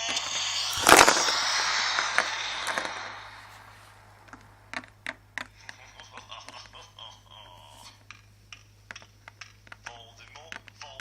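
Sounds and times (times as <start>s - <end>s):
loud noisy rush: 0.0s - 4.8s.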